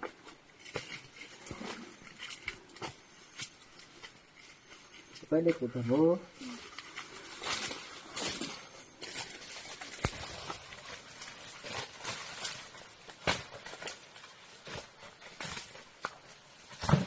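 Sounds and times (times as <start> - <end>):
rustling and scuffing: 6.7 - 17.0.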